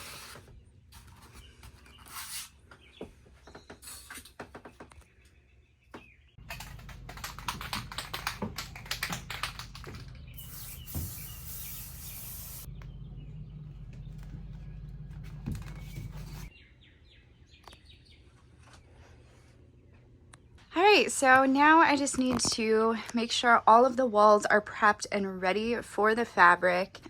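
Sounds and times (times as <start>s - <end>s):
birds chirping faintly: 0.2s - 22.2s
steady low hum: 6.4s - 16.5s.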